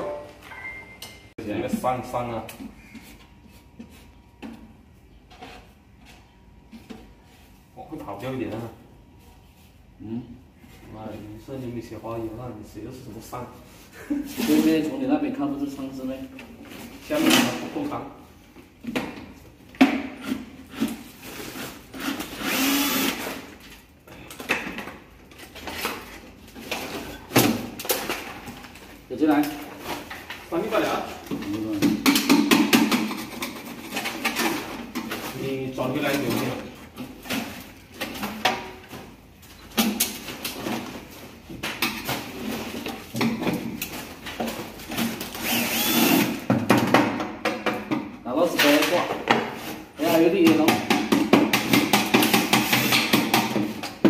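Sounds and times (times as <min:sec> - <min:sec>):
power drill running: 0:22.4 - 0:23.4, 0:45.4 - 0:46.4.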